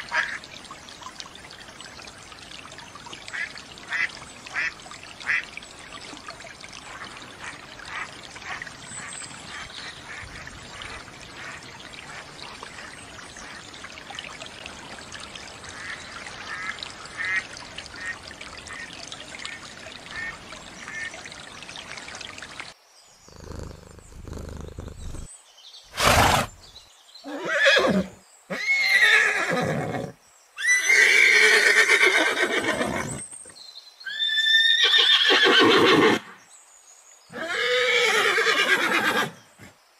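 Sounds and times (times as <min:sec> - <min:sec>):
water rushing: 0:00.0 - 0:25.3, 0:25.9 - 0:30.0
horse neighing: 0:23.3 - 0:25.3, 0:25.9 - 0:26.6, 0:27.2 - 0:33.2, 0:34.1 - 0:36.2, 0:37.3 - 0:39.4.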